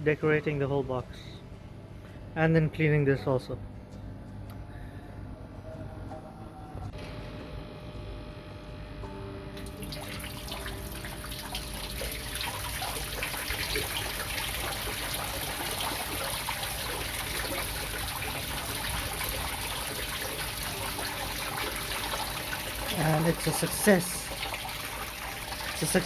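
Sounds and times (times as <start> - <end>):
water pouring and splashing: 9.6 - 26.0.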